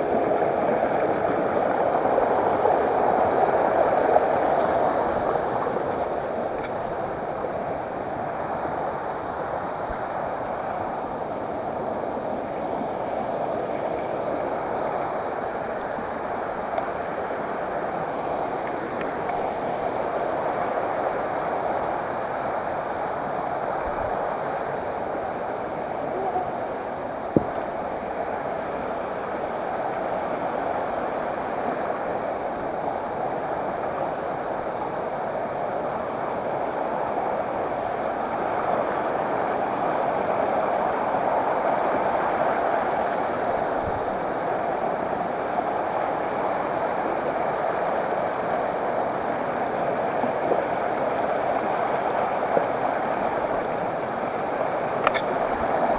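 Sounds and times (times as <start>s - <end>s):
flowing water rushing: 0.0s - 55.9s
sharp click: 55.0s - 55.3s.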